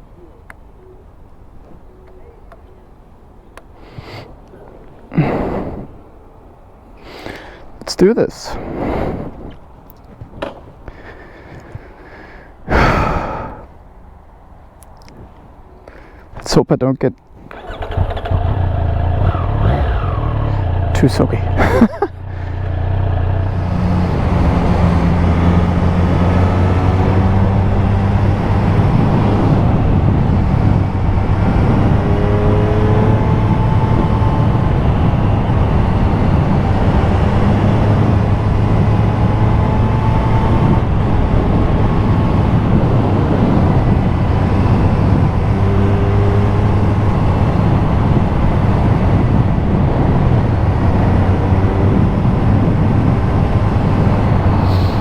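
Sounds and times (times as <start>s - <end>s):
wind rushing over microphone: 7.5s - 14.0s, 17.3s - 55.0s
motorcycle engine running: 17.5s - 26.0s.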